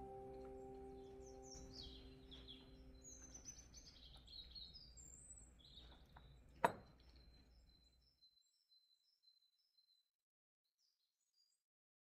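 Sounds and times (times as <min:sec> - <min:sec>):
small birds chirping: 0:00.0 - 0:10.1.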